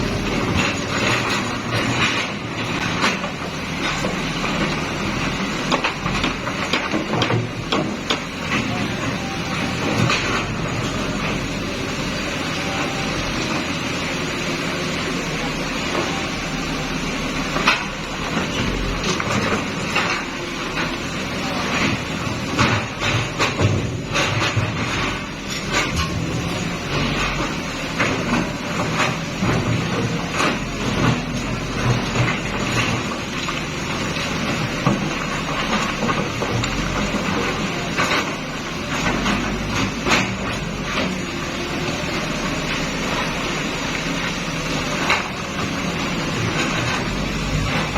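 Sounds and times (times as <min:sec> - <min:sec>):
excavator running: 0:00.0 - 0:47.9
knocks and clanks: 0:05.6 - 0:11.8, 0:17.6 - 0:41.2.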